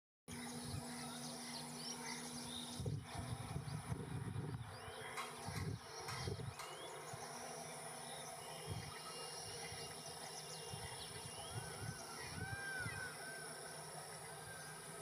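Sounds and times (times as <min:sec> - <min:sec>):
bird chirps: 0:04.7 - 0:14.9
high-pitched insect drone: 0:07.3 - 0:15.0.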